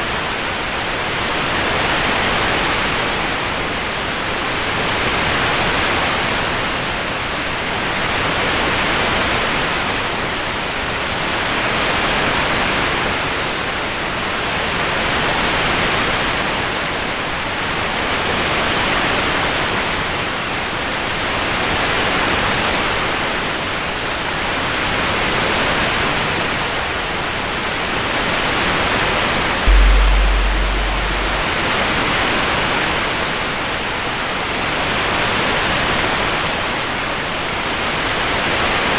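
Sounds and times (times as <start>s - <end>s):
deep low rumble: 29.7s - 32.0s.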